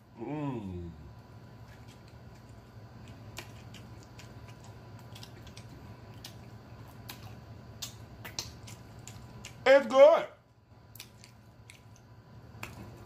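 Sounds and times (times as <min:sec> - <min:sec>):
faint low hum: 0:00.0 - 0:13.0
man chewing with mouth closed: 0:01.5 - 0:09.6, 0:10.8 - 0:13.0.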